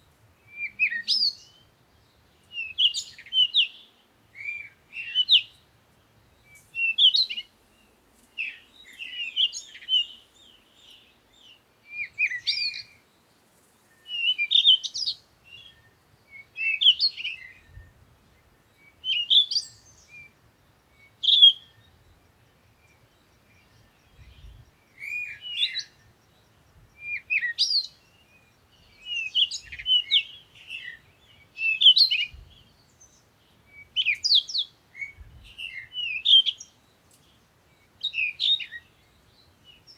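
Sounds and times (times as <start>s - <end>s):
songbird whistling: 0.5s - 1.6s, 2.5s - 5.6s, 6.4s - 7.5s, 8.4s - 10.2s, 11.9s - 13.0s, 14.0s - 17.9s, 18.9s - 20.3s, 21.0s - 21.8s, 24.4s - 26.0s, 27.0s - 28.0s, 29.0s - 32.4s, 33.7s - 36.8s, 38.0s - 38.9s.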